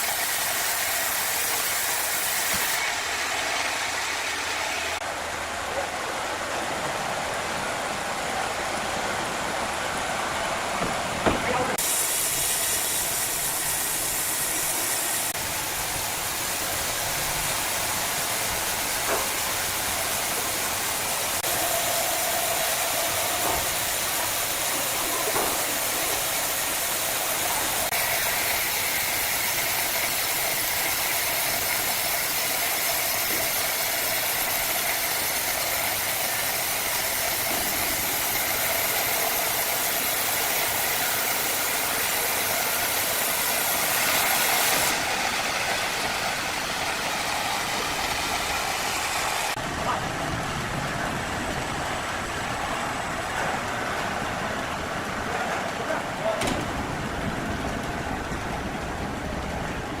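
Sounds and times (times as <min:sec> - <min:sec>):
wood-cutting saw machine running: 0:00.0 - 0:05.0, 0:09.6 - 0:49.6.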